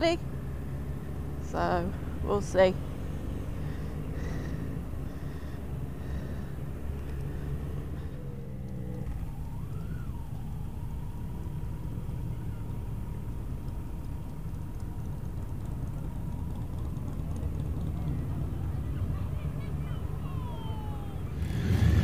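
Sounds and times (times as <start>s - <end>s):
motorcycle engine rumbling: 0.0s - 22.0s.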